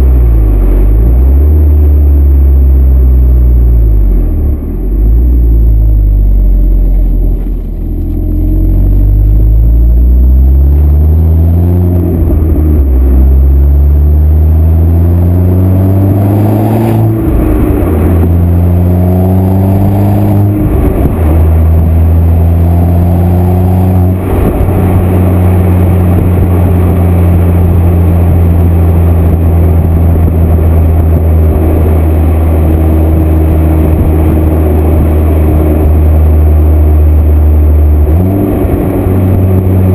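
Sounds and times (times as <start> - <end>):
car exhaust accelerating: 0.0 - 39.9.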